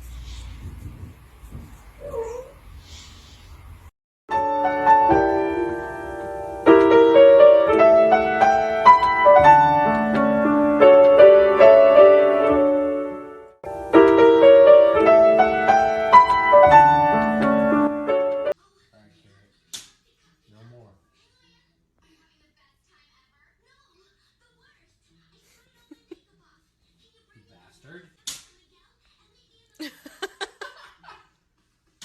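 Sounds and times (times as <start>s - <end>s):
faint cat meow: 2.0s - 2.6s
piano music: 4.3s - 18.6s.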